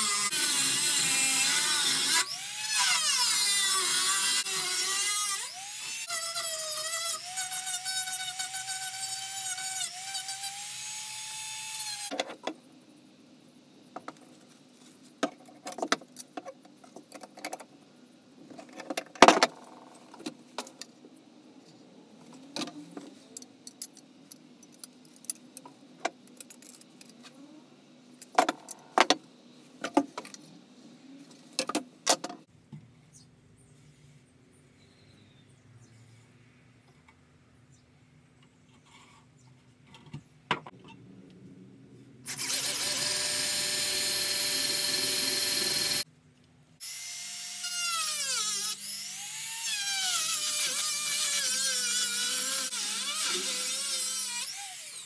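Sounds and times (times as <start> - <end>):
rotary tool grinding metal: 0.0 - 12.1, 42.3 - 46.0, 46.8 - 55.0.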